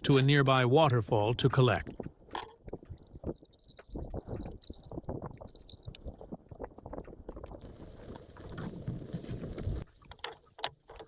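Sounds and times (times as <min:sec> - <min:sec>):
wet squishing and splashes: 0:01.8 - 0:10.0.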